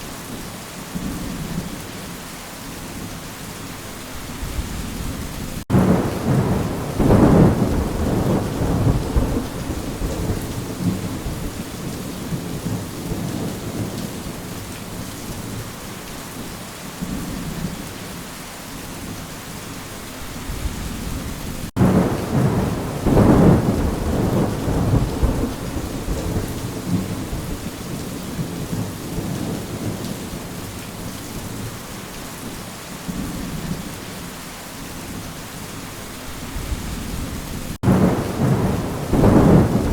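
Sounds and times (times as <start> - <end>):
steady rain: 0.0 - 39.9
thunder rolling: 4.5 - 14.0, 20.5 - 30.0, 36.6 - 39.9.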